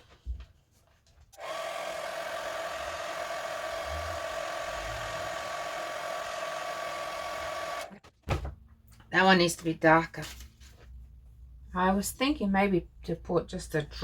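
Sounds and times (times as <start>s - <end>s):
small electric motor whirring: 1.4s - 7.9s.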